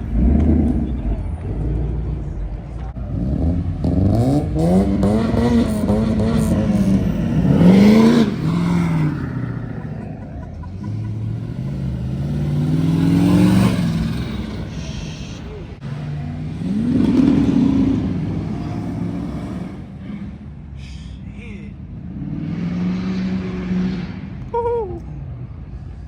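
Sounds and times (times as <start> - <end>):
car engine revving hard: 3.0 - 20.4, 22.0 - 24.4.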